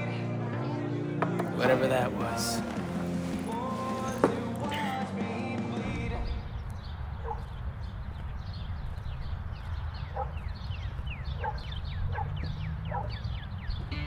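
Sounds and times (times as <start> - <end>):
birds chirping: 5.7 - 14.0.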